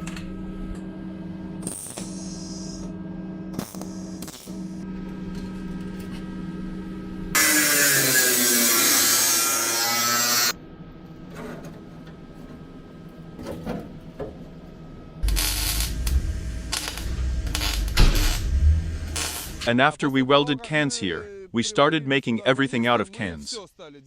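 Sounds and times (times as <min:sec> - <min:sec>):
uneven workshop noise: 0:00.0 - 0:19.7
power tool running: 0:07.3 - 0:10.6, 0:15.2 - 0:19.7.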